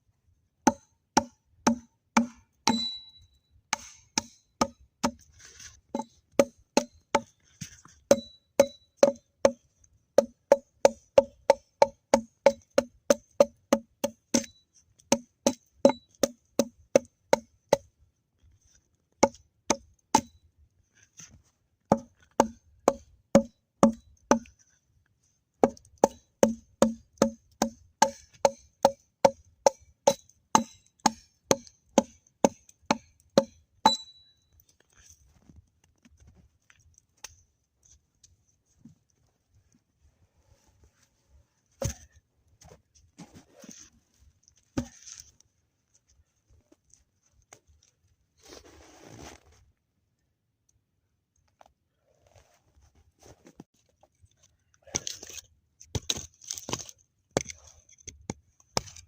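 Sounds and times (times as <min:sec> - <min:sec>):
axe chopping wood: 0:00.7 - 0:03.0, 0:03.7 - 0:05.2, 0:06.0 - 0:07.3, 0:08.1 - 0:09.6, 0:10.2 - 0:17.8, 0:21.9 - 0:24.5, 0:25.6 - 0:34.1, 0:41.8 - 0:42.1, 0:44.8 - 0:45.0.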